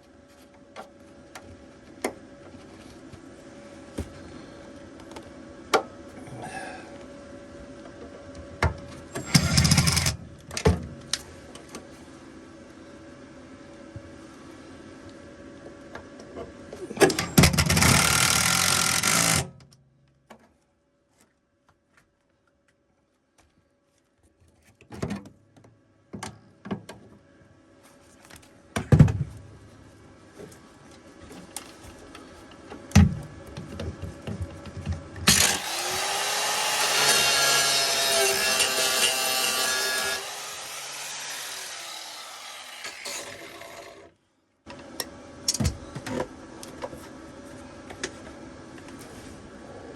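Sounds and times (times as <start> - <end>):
metalworking noise with rising tone: 35.2 - 44.1.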